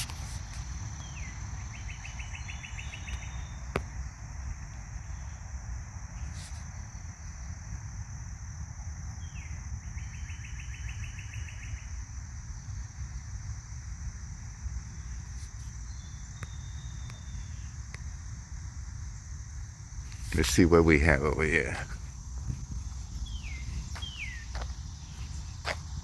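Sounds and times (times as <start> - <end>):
songbird singing trill: 1.0 - 3.8, 9.2 - 13.1, 14.9 - 19.4, 20.0 - 26.0
high-pitched insect buzz: 20.0 - 26.0.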